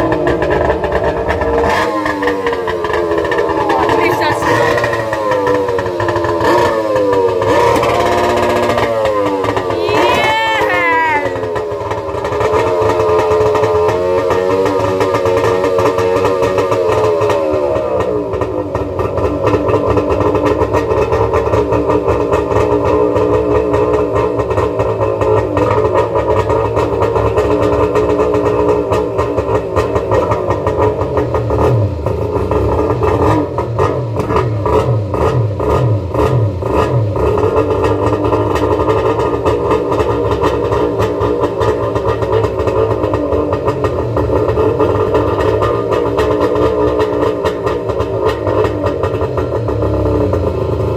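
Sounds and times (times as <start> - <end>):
jet ski engine running: 0.0 - 9.8.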